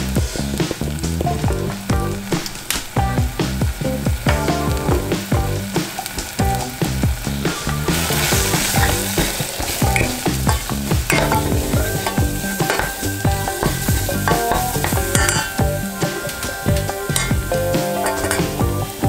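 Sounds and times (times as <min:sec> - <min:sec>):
food sizzling in a saucepan: 0:02.2 - 0:19.0
spoon knocking and scraping pan: 0:07.7 - 0:18.9.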